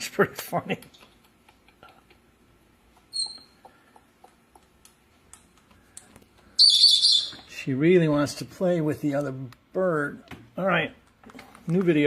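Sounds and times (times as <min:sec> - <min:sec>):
parrot high chirp: 0:03.1 - 0:03.6, 0:06.6 - 0:07.5.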